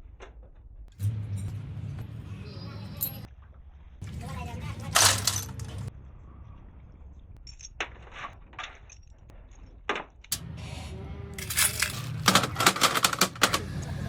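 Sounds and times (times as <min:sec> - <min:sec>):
metallic clinks and knocks: 0:05.0 - 0:05.9, 0:07.4 - 0:09.6, 0:11.4 - 0:13.6.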